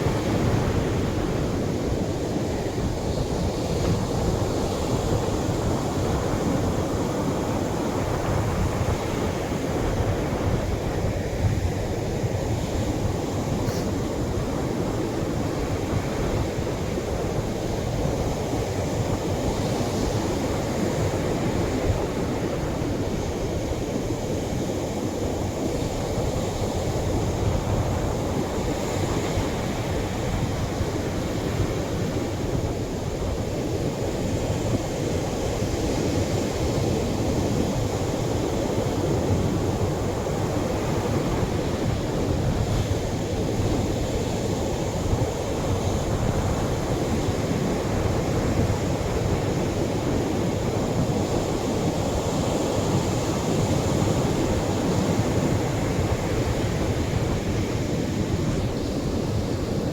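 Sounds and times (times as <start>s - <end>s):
waves breaking on a beach: 0.0s - 59.9s
hissing wash of waves: 12.2s - 17.4s.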